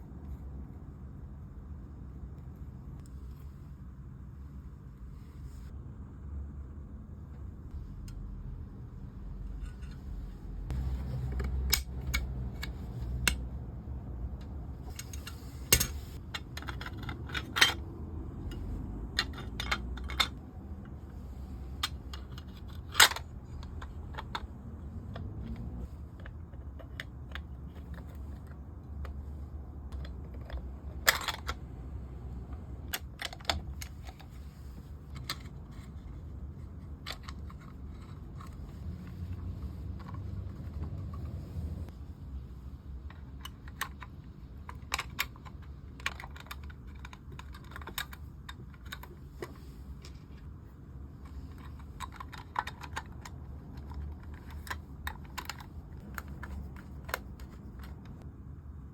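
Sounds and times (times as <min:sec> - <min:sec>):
steady low hum: 0:00.0 - 0:58.9
small hard parts clicking: 0:51.2 - 0:58.2.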